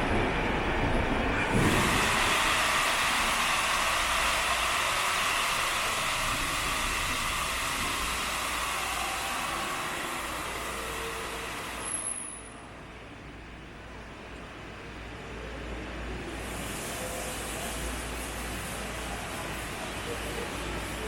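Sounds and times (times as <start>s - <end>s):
steam engine hissing: 1.4s - 12.2s, 16.3s - 21.0s.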